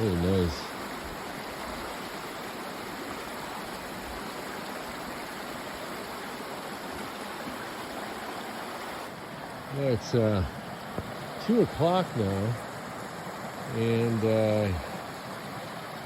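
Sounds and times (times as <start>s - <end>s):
creek rushing over rocks: 0.0s - 16.0s.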